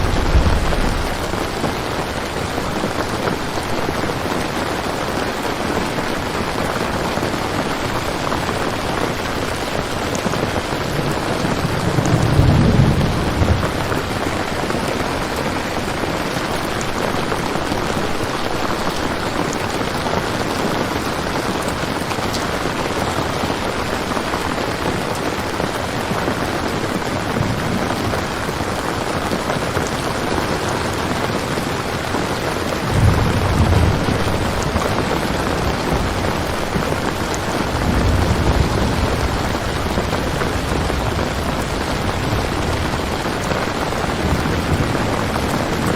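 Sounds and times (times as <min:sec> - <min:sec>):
low thunder rumble: 0:00.0 - 0:03.9, 0:08.6 - 0:16.9, 0:32.6 - 0:45.9
steady rain: 0:00.0 - 0:45.9.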